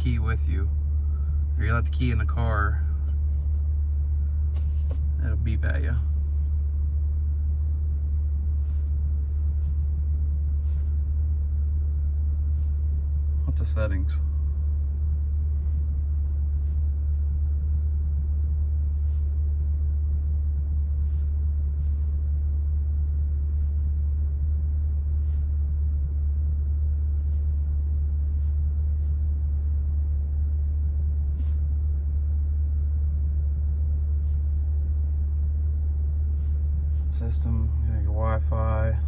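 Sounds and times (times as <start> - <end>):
car engine idling: 33.8 - 39.0.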